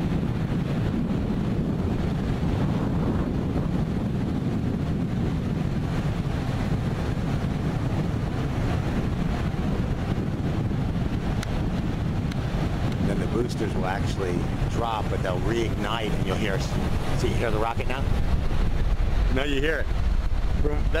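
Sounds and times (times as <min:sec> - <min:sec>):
distant rocket engine rumble: 0:00.0 - 0:21.0
wind buffeting microphone: 0:00.0 - 0:21.0.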